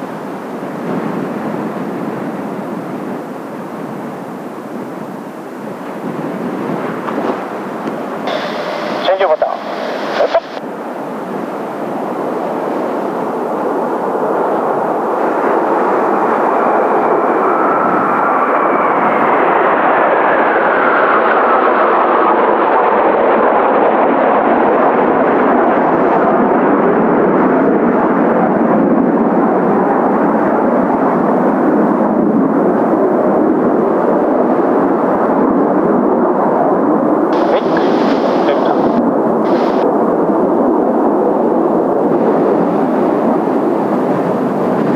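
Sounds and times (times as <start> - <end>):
turbine whine: 0.0 - 23.8, 37.4 - 40.2
jet aircraft flying by: 0.0 - 44.9.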